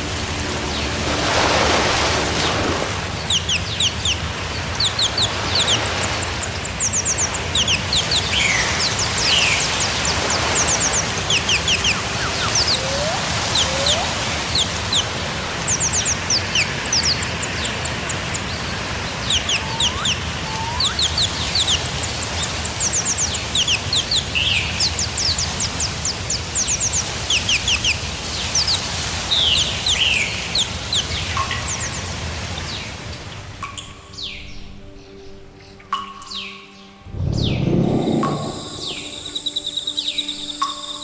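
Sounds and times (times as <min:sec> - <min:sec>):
steady low hum: 0:00.0 - 0:23.2, 0:37.0 - 0:39.5
birds chirping: 0:00.0 - 0:40.7
low rising bird calls: 0:00.1 - 0:25.9, 0:37.0 - 0:40.0.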